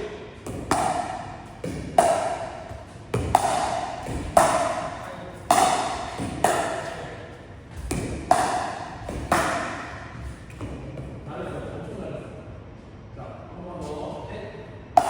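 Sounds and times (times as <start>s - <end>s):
paddles striking plastic ball: 0.4s - 6.9s, 7.8s - 10.0s.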